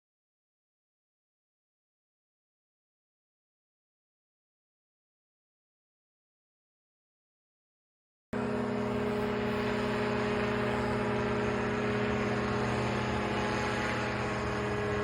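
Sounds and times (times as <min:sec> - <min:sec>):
small aircraft engine droning: 0:08.4 - 0:15.0.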